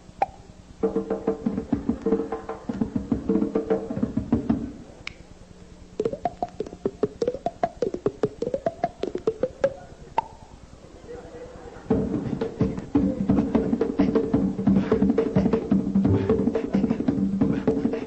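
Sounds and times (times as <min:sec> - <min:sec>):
band drumming: 0:00.8 - 0:04.8, 0:06.0 - 0:09.8, 0:11.9 - 0:18.0
rapid sharp pitch-sliding strikes: 0:06.0 - 0:10.6, 0:11.9 - 0:18.0.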